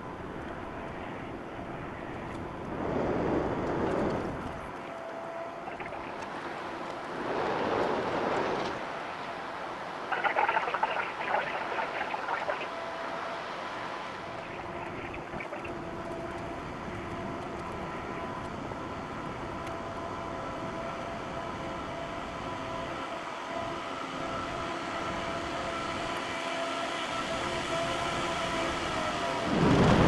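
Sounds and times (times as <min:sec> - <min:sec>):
irregular crackling: 0:05.7 - 0:06.4, 0:10.1 - 0:12.7, 0:14.3 - 0:15.7.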